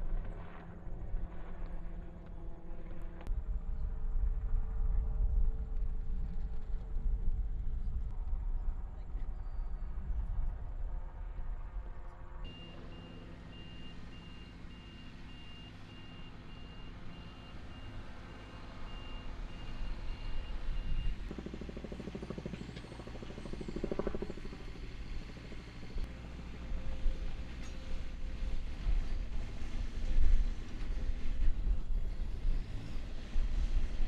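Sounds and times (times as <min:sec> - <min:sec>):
engine running: 0:11.1 - 0:34.0
vehicle backup alarm beeping: 0:12.5 - 0:21.3.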